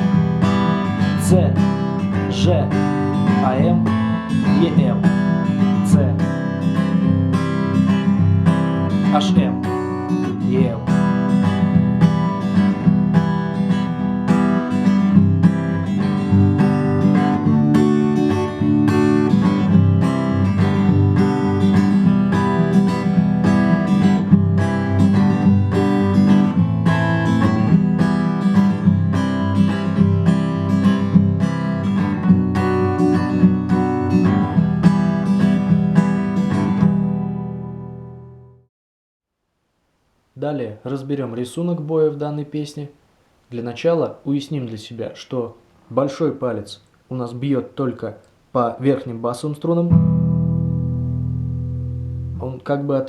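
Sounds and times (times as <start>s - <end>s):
acoustic guitar strumming: 0.0s - 38.7s, 49.9s - 52.6s.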